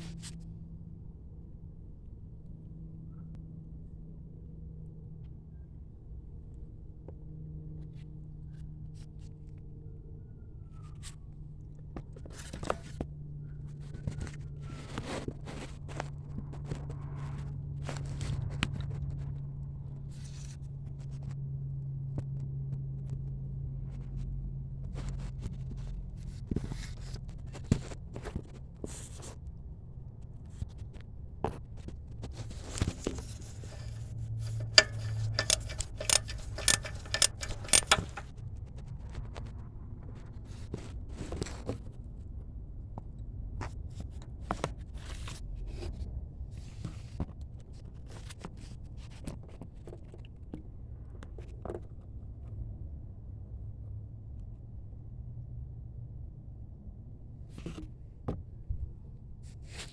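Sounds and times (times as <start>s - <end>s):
steady low hum: 32.7s - 38.3s
hand tools clicking on metal: 33.4s - 38.3s
sharp ringing metal taps: 33.6s - 38.2s.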